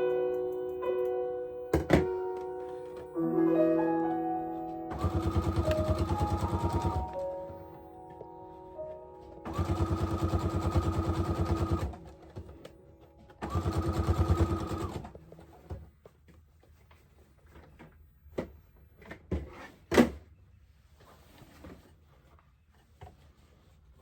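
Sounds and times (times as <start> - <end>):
sewing machine stitching: 4.9 - 7.2, 9.5 - 12.1, 13.4 - 15.2.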